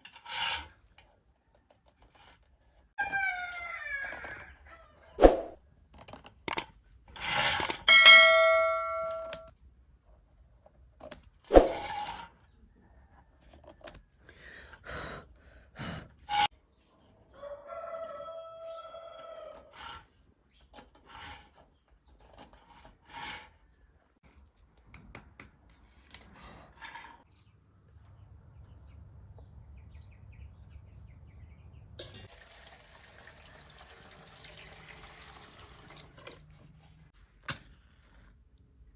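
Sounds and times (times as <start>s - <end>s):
rooster crowing: 3.0s - 5.0s, 17.4s - 19.8s.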